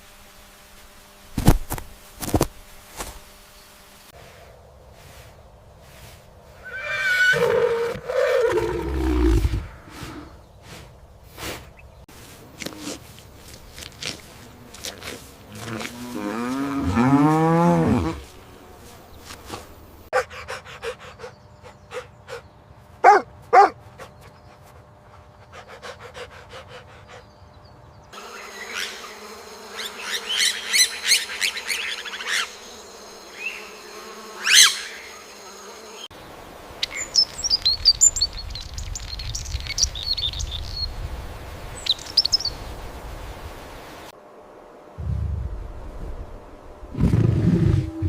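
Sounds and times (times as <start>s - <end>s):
insect buzzing and chirping: 0.0s - 48.0s
high bird chirps: 36.8s - 40.9s, 41.8s - 42.6s.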